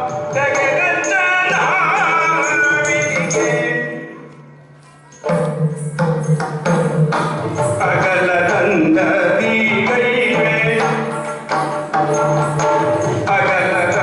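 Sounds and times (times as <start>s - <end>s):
person singing melismatically: 0.0s - 5.3s, 7.0s - 14.0s
drum strokes: 5.2s - 14.0s.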